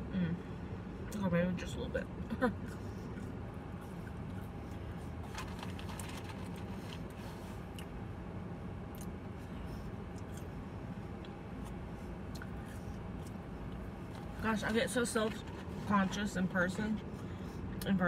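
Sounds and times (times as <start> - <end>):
low hum inside a car: 0.0 - 18.0
chewing fries: 2.7 - 8.0, 8.8 - 16.2.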